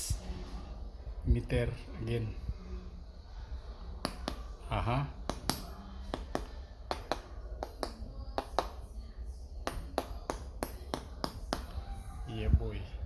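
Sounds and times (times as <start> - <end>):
steady low hum: 0.0 - 13.0
taps on crispy roasted skin: 4.0 - 4.5, 5.2 - 8.8.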